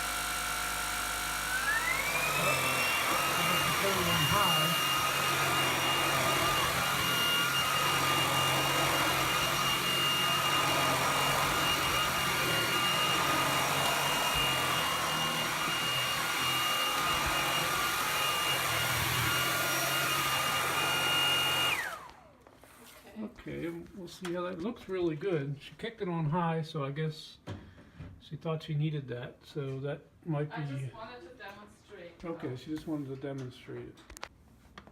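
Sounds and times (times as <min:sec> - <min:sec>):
stick vacuum whining: 0:00.0 - 0:22.5.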